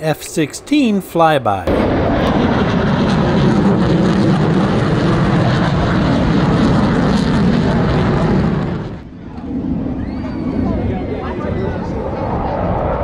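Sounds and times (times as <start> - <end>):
fighter jet flying past: 0.0 - 13.0.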